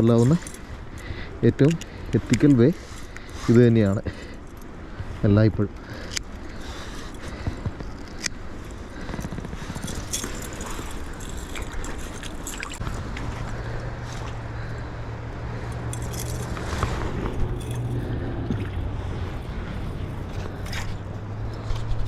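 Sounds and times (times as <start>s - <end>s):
low steady hum: 0.0s - 22.0s
scrapes and clicks of handling fish: 5.8s - 14.4s, 15.7s - 22.0s.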